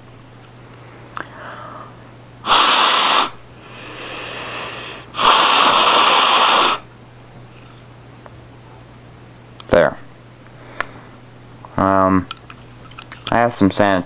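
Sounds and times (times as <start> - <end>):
person breathing in: 1.2 - 6.8
person blowing through tubes: 2.4 - 6.9.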